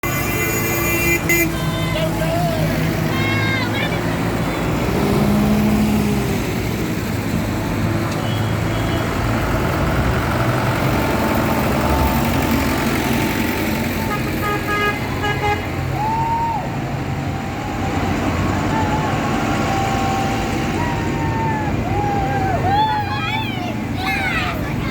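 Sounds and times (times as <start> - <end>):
horn tooting: 0.0 - 2.2, 13.2 - 16.1
tractor engines running: 0.0 - 24.9.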